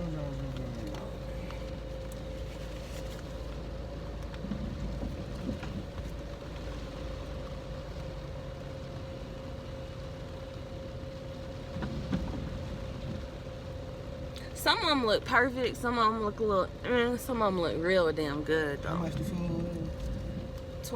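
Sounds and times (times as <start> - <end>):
car cabin rumble: 0.0 - 9.8, 10.5 - 20.9
constant hum: 0.0 - 20.9.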